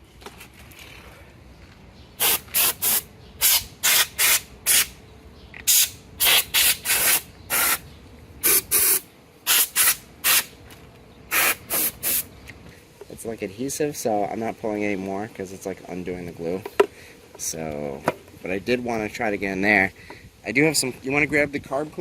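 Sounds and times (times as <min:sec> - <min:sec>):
spray bottle squirting: 0:02.2 - 0:04.9, 0:05.6 - 0:07.8, 0:08.4 - 0:10.5, 0:11.3 - 0:12.3.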